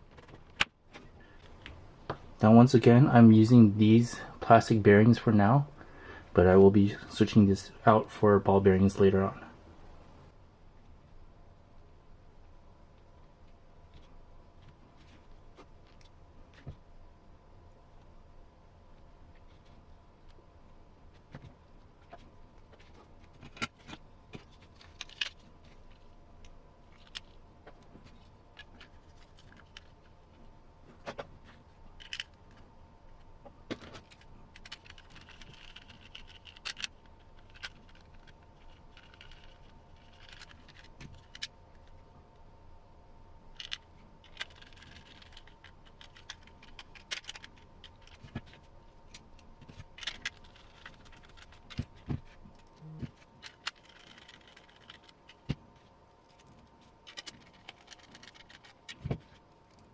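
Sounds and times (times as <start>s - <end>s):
plastic parts and screws clicking: 21.3s - 30.1s, 31.1s - 32.6s, 33.7s - 42.0s, 43.5s - 59.9s.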